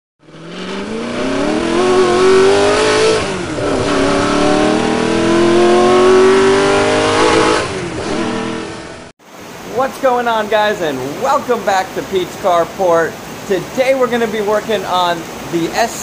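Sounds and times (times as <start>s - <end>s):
car engine accelerating hard: 0.2s - 9.1s.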